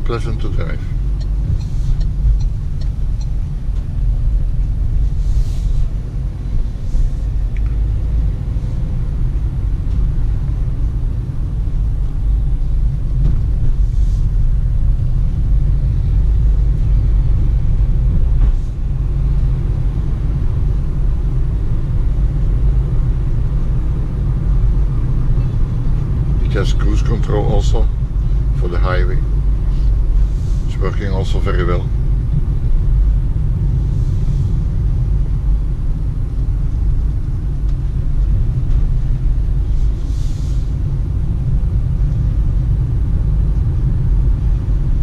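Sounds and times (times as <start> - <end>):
engine and road noise rumble: 0.0 - 45.0
faint brief hisses: 40.0 - 40.7.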